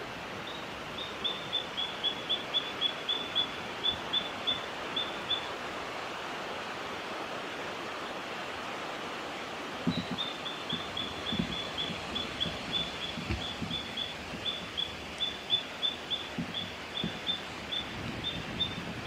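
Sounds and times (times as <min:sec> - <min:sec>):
background hiss: 0:00.0 - 0:19.0
soft low thuds: 0:09.8 - 0:15.0, 0:16.3 - 0:17.4.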